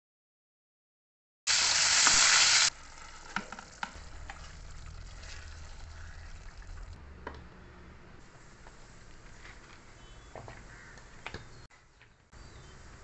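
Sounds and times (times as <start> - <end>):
okra sizzling in hot oil: 1.5 - 7.0.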